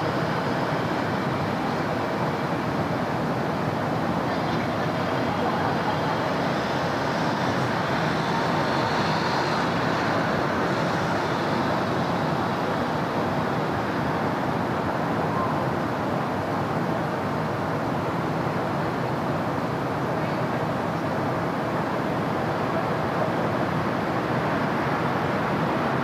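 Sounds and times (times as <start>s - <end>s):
passing cars: 0.0s - 19.9s.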